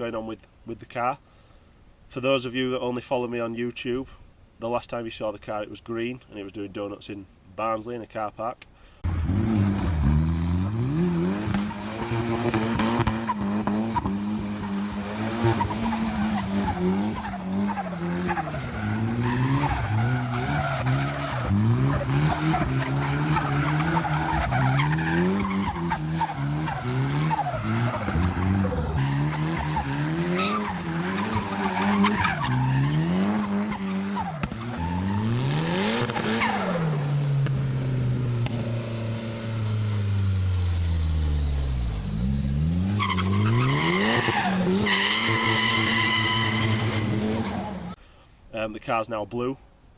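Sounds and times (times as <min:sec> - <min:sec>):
car engine revving: 0:09.0 - 0:48.0
tyres squealing on tarmac: 0:14.6 - 0:35.4, 0:36.2 - 0:47.2.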